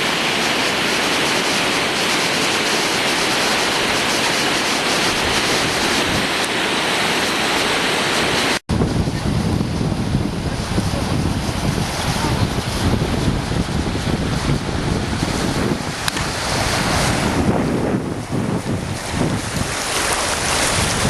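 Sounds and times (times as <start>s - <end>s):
wind buffeting microphone: 0.0s - 6.6s, 8.2s - 21.0s
floodwater rushing: 0.0s - 21.0s.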